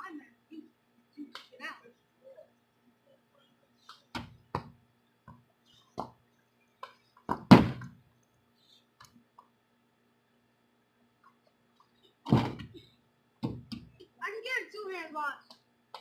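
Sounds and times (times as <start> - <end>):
faint steady hum: 0.0 - 16.0
short knocks and thuds: 7.3 - 8.0, 12.2 - 13.9.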